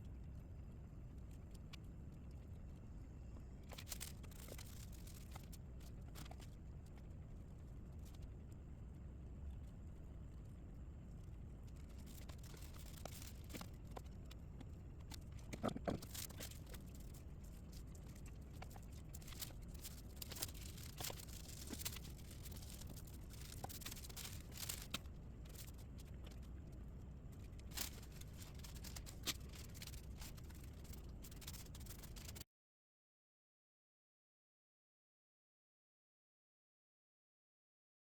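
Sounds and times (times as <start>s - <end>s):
small clicks and ticks: 0.0s - 8.7s, 9.4s - 32.4s
low steady hum: 0.0s - 32.4s.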